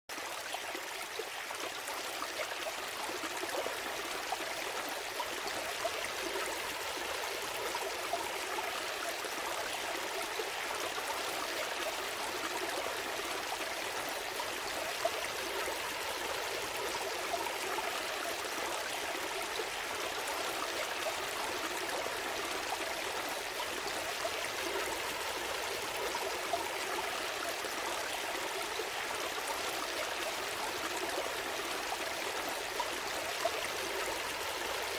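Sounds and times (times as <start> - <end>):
stream trickling over stones: 0.1 - 34.9.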